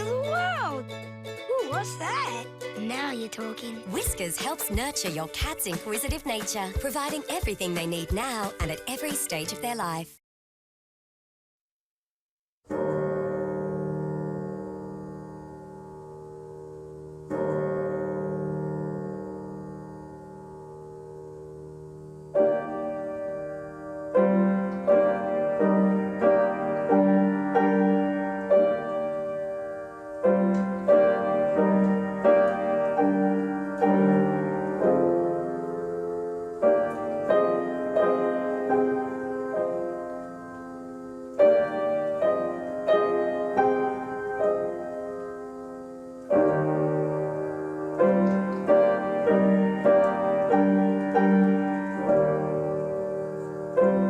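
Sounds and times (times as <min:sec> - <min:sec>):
solo piano melody: 0:12.7 - 0:54.0.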